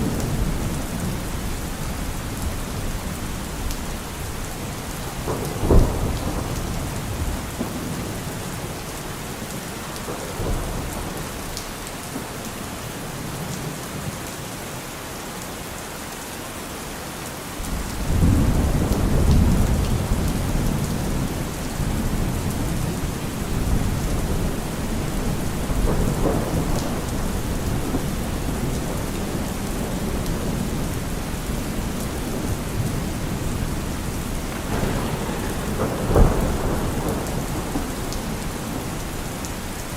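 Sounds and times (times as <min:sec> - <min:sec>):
deep rolling thunder rumble: 0:00.0 - 0:11.7, 0:17.7 - 0:39.9
heavy rain: 0:00.0 - 0:39.9
thunder crack: 0:05.1 - 0:08.8, 0:17.7 - 0:39.9.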